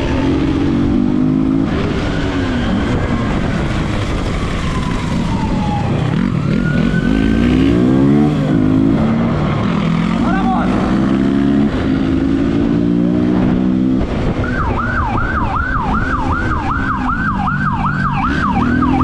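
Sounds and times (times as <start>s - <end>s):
police siren wailing: 0.0s - 10.9s, 14.0s - 19.0s
road and wind noise: 0.0s - 19.0s
motorcycle engine revving: 4.8s - 14.3s, 15.1s - 19.0s.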